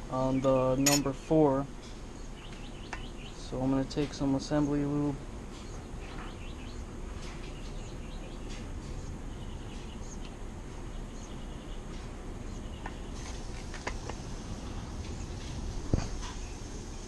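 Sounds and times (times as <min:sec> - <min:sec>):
birds chirping: 0:00.0 - 0:14.1
outdoor background noise: 0:00.0 - 0:17.0.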